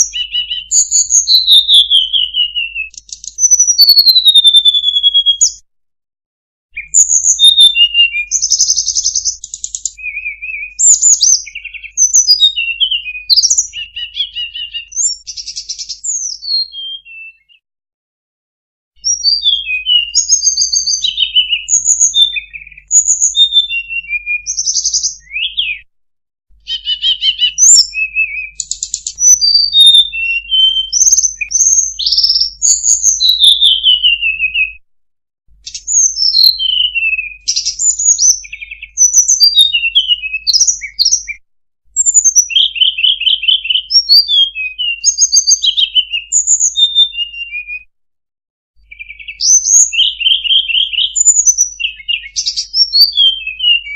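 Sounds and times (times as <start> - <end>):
bird whistling song: 0.0 - 5.6, 6.8 - 17.6, 19.0 - 25.9, 26.6 - 34.8, 35.6 - 47.9, 48.8 - 53.9.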